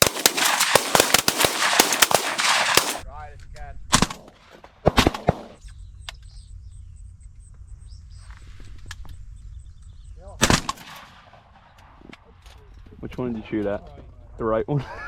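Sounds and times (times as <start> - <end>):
shotgun blasts: 0.0 - 3.0, 3.9 - 5.6, 10.4 - 12.1.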